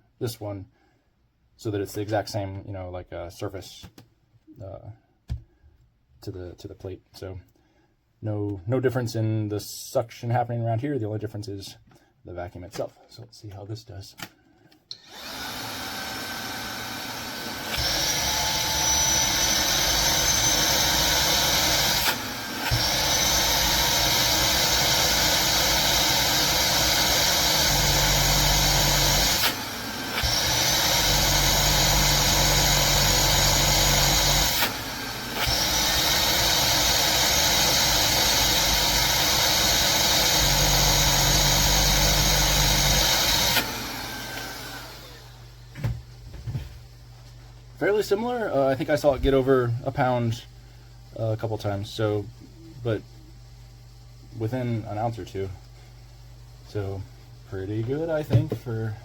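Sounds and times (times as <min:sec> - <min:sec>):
vacuum nozzle on steel plate: 0:14.9 - 0:45.4
handheld vacuum motor whining: 0:14.9 - 0:45.6.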